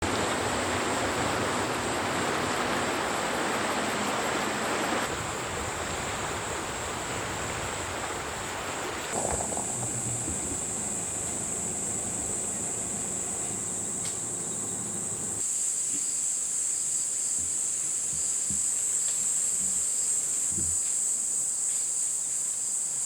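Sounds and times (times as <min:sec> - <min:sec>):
high insect trilling: 0:09.1 - 0:15.4.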